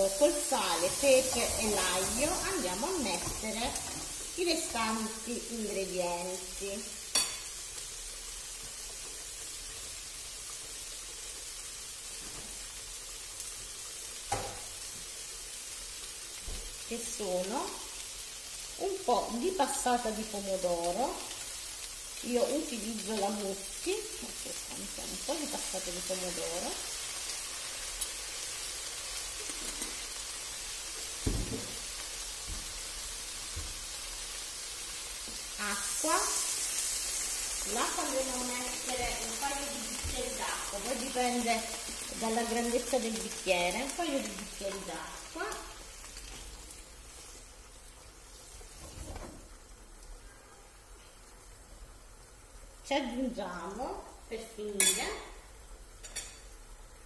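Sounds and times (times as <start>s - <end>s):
aubergine sizzling in oil: 0.0s - 57.0s
dull thump: 31.2s - 31.8s.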